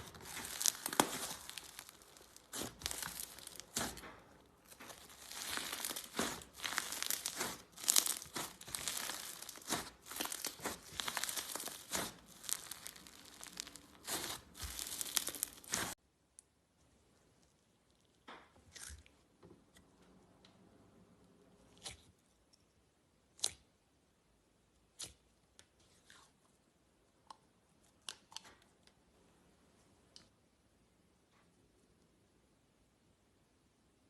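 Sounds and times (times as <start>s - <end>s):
slime crackling and popping: 0.0s - 16.0s.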